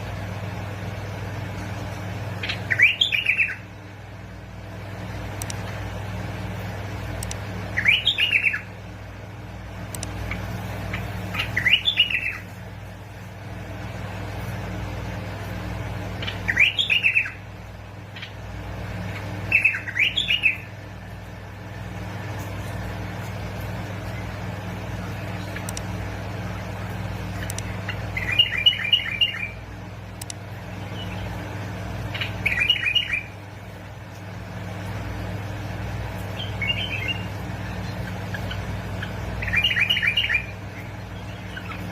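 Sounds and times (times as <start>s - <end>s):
low hum: 0.0s - 41.9s
bird singing whistled phrases: 2.7s - 3.6s, 7.8s - 8.7s, 11.4s - 12.5s, 16.2s - 17.4s, 19.5s - 20.7s, 28.2s - 29.6s, 32.2s - 33.3s, 36.4s - 37.3s, 39.4s - 40.6s.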